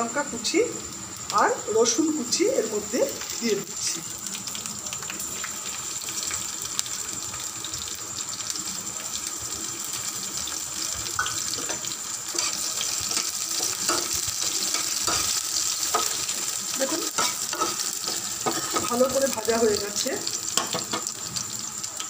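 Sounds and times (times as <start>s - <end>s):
vegetables sizzling in oil: 0.0s - 22.0s
knocks against the pan: 20.6s - 21.1s.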